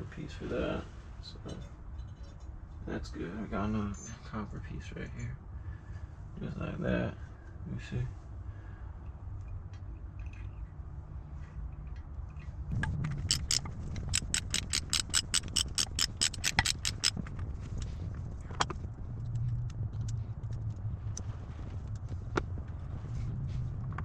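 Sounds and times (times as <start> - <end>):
ratchet wrench clicking: 13.2 - 17.2.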